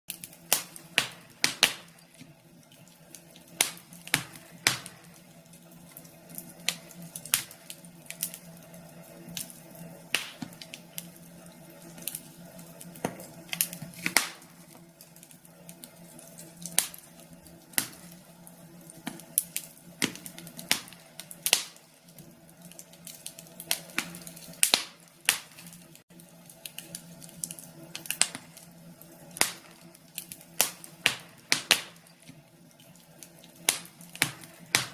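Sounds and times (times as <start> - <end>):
fire crackling and popping: 0.1 - 34.9.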